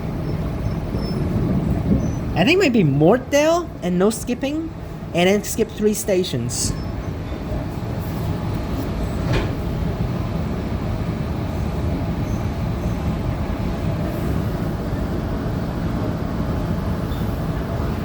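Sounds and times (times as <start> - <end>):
train wheels rumbling on track: 0.0 - 2.4, 6.8 - 18.0.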